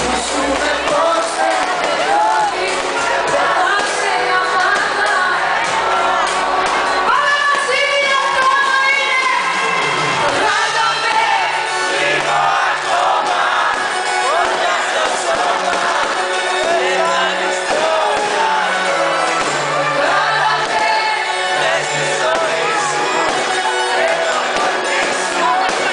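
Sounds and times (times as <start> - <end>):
bass line: 0.0 - 8.7
crowd noise: 0.0 - 25.9
live pop band playing: 0.0 - 25.9
voices singing: 0.0 - 25.9.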